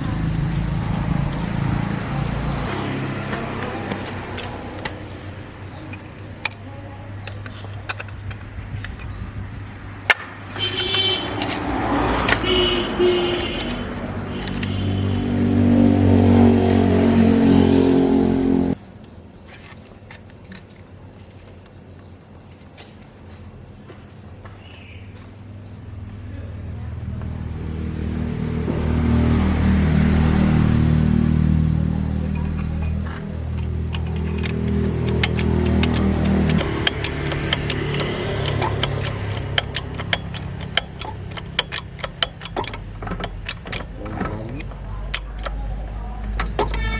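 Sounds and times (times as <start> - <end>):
engine revving: 0.0 - 6.6, 7.2 - 18.8, 25.8 - 46.9
metallic clicks and clinks: 0.0 - 15.0, 32.0 - 46.9
light clicks and knocks: 32.2 - 46.9.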